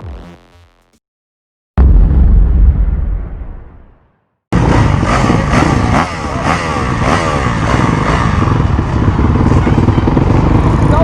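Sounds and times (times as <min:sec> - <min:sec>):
low rumble: 0:01.8 - 0:05.6
motocross bikes revving: 0:04.6 - 0:11.0.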